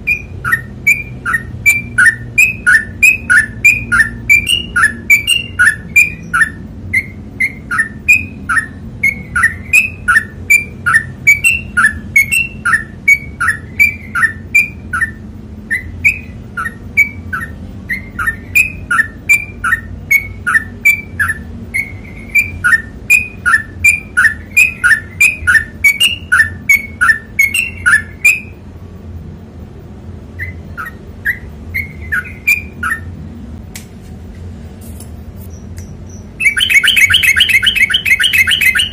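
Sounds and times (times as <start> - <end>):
bird singing repeated notes: 0.0 - 29.2, 29.8 - 33.3, 35.5 - 38.9.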